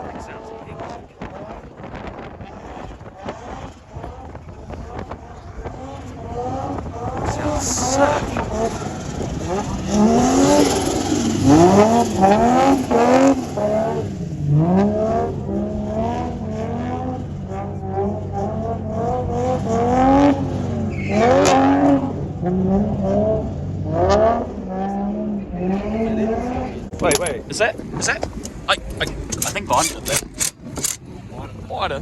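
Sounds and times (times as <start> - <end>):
car engine revving: 0.0 - 32.0
tyre noise: 27.0 - 31.5.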